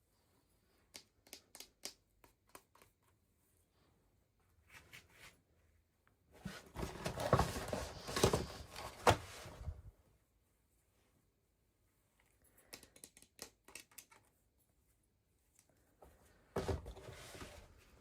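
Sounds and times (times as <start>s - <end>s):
packaging rustling and crinkling: 6.4s - 9.7s.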